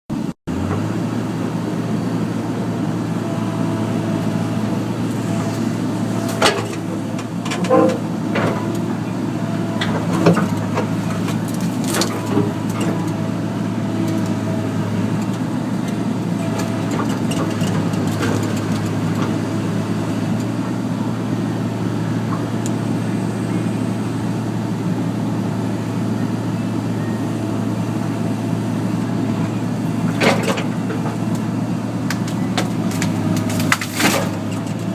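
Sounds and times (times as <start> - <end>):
excavator diesel engine running: 0.1 - 34.9
branch cracking and knocks: 32.1 - 34.4.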